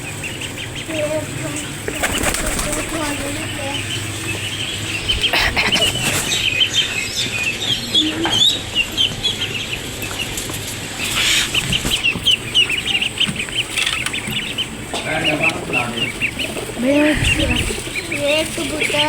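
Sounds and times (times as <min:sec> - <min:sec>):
wings flapping: 0:00.0 - 0:06.5, 0:10.3 - 0:19.0
birds chirping: 0:00.0 - 0:19.0.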